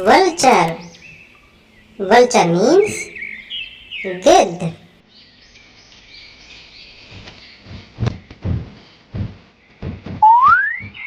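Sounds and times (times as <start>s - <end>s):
birdsong chirping: 0.0s - 11.0s
low knocks: 8.0s - 11.0s
rising whistle-like tone: 10.2s - 11.0s.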